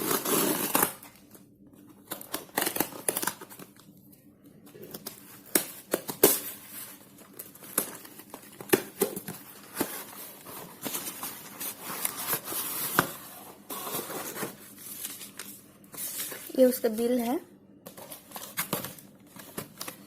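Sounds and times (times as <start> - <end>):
packaging crinkling and rustling: 4.7 - 17.3, 17.9 - 20.0.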